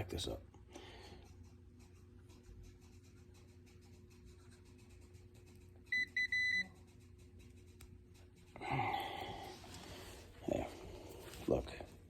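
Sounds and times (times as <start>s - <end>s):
multimeter beeps: 5.9s - 6.7s.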